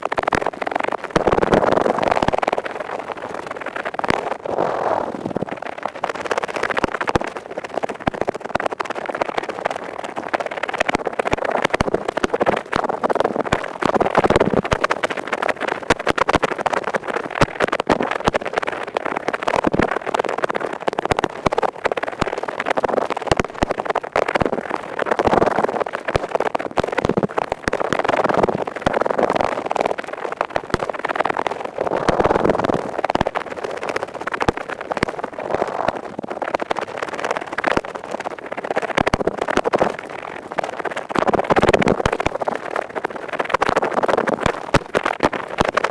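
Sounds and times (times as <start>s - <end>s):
ear pick scraping: 4.3s - 5.5s.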